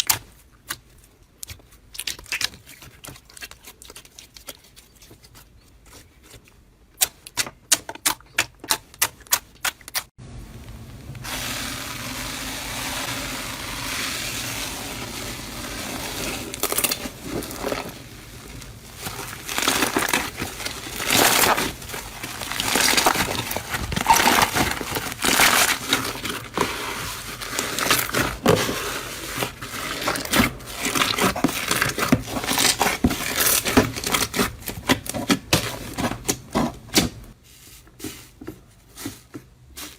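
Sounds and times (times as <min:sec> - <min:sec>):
material crunching by hand: 0:11.2 - 0:37.3.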